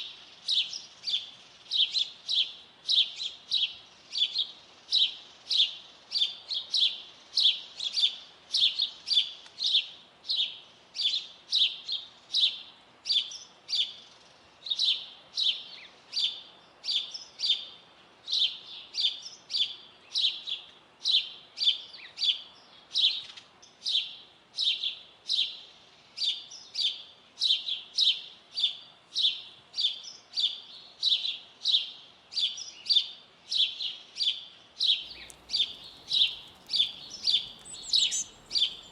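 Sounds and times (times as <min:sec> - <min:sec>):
songbird chirping: 0:33.6 - 0:38.9.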